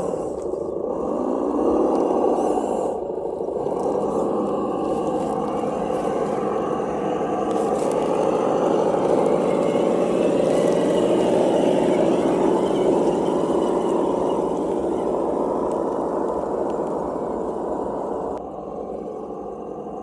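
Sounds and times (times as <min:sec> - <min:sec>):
electric motor whine: 0:03.5 - 0:18.4
simulated engine sound from speaker: 0:03.5 - 0:20.0.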